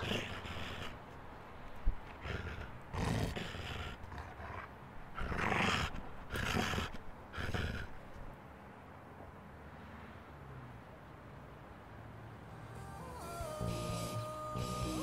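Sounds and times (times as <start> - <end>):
beast growling and snarling: 0.0 - 1.0, 2.1 - 8.0.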